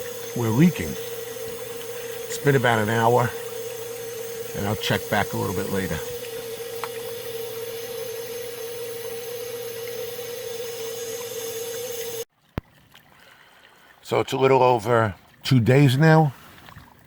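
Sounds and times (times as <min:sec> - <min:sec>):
steady hum: 0:00.0 - 0:12.3
water rushing through drain pipe: 0:00.0 - 0:17.0.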